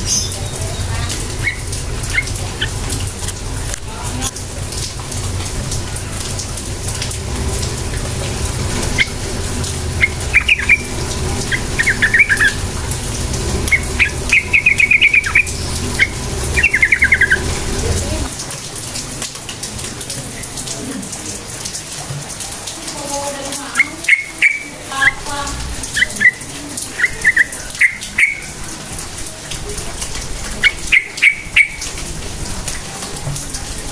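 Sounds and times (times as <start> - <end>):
bird chattering calls: 0.0 - 3.7, 7.9 - 18.3, 23.7 - 28.7, 30.6 - 32.0
steady low rumble: 0.0 - 18.4.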